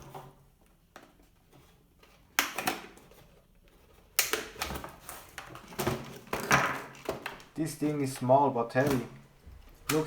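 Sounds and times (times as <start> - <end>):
plastic packaging clattering and rustling: 0.0 - 10.0
sharp plastic snaps: 2.3 - 3.0, 4.1 - 4.9, 8.8 - 10.0.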